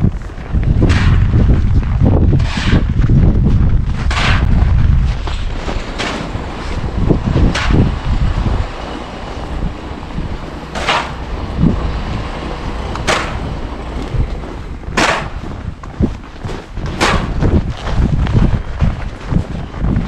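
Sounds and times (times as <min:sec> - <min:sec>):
wind rumbling on microphone: 0:00.0 - 0:20.0
sharp scraping strokes: 0:02.3 - 0:03.0, 0:10.7 - 0:14.3.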